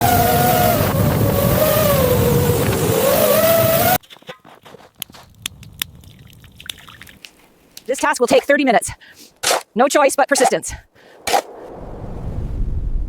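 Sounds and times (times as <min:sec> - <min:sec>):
water dripping: 0:05.3 - 0:07.9
storm wind howling: 0:10.8 - 0:13.0.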